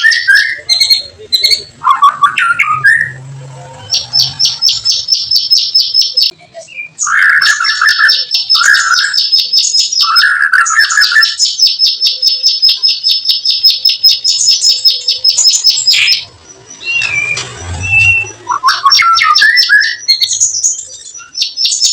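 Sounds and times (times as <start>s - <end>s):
songbird rattling chirps: 3.9s - 6.3s, 7.0s - 21.9s.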